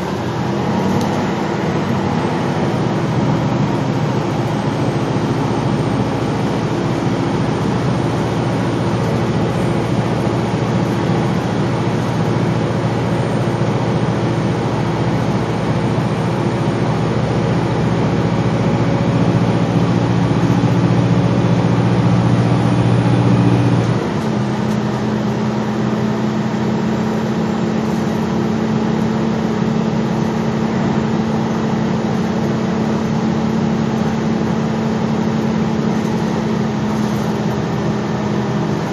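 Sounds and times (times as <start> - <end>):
bus engine running: 0.0 - 38.9.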